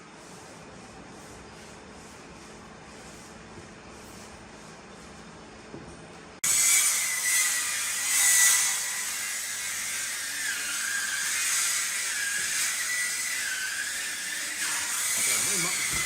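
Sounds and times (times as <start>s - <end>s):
electric power tool on wood: 10.5s - 16.0s.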